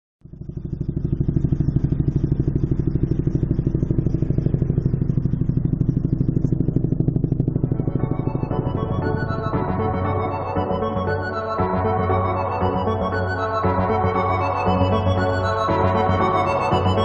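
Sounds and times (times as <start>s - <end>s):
music: 6.4s - 17.0s.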